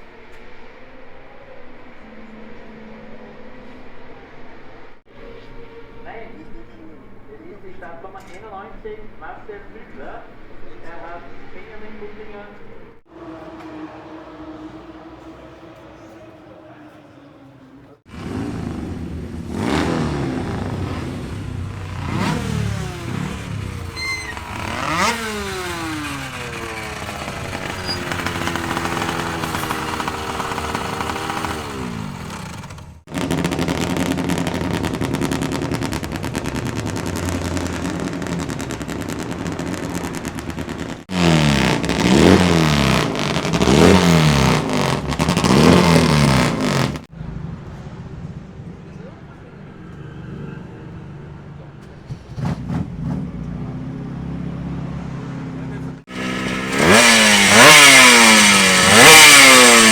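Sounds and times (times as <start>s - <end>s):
two-stroke motorcycle engines revving: 18.0s - 47.1s, 49.9s - 59.9s.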